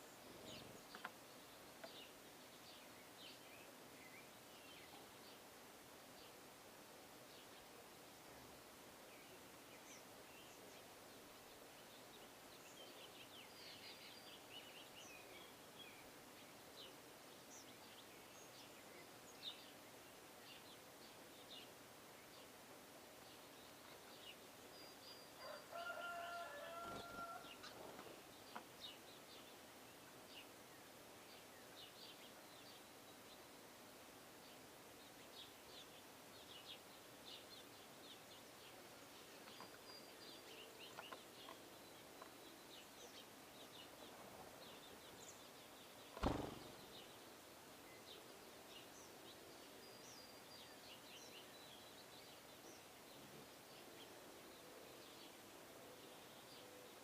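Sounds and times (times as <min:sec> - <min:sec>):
small birds chirping: 0:00.0 - 0:57.0
sharp knock: 0:46.2 - 0:46.8.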